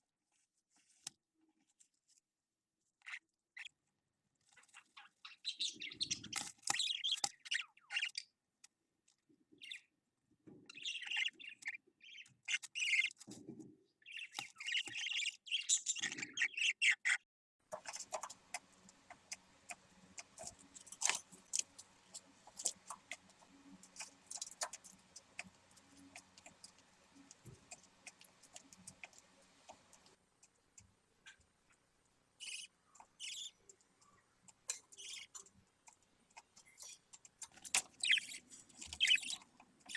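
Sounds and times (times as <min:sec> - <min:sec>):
budgerigar chicks chirping: 0:04.6 - 0:08.2, 0:10.7 - 0:13.2, 0:14.1 - 0:39.9
steady low hum: 0:17.8 - 0:32.9.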